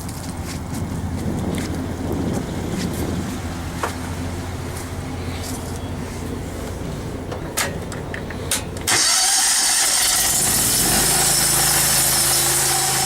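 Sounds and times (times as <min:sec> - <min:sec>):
pressure washer engine running: 0:08.9 - 0:13.0.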